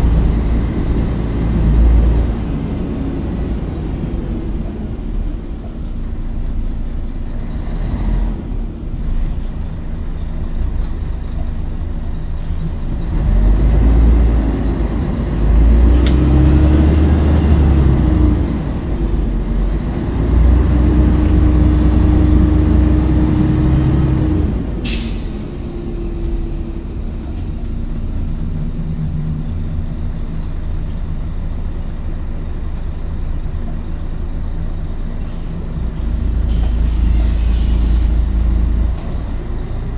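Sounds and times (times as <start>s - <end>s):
bus diesel engine: 0.0s - 39.9s
air brakes hissing: 11.2s - 13.2s, 21.1s - 28.7s, 35.0s - 39.4s.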